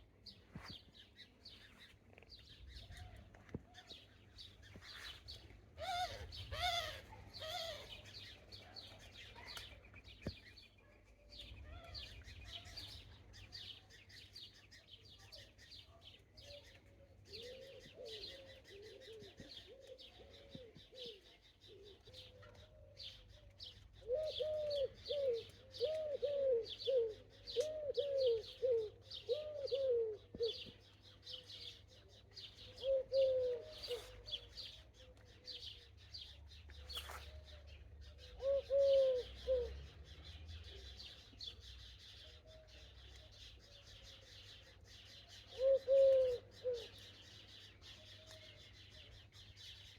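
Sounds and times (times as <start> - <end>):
small songbirds chirping: 0.0 - 49.9
pigeon cooing: 24.0 - 30.6, 32.7 - 34.3, 38.3 - 39.9, 45.5 - 46.9.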